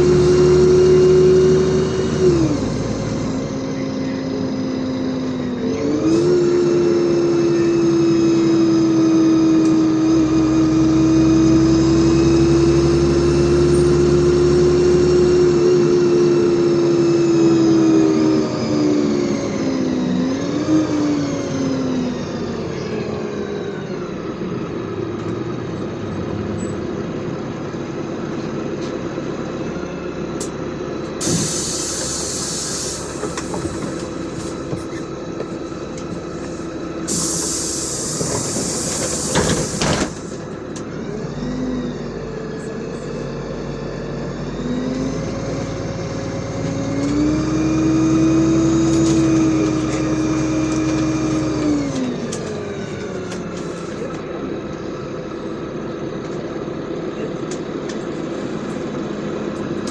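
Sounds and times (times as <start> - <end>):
bus engine rumble: 0.0 - 59.9
compressed air hissing: 31.2 - 35.0, 36.2 - 40.3.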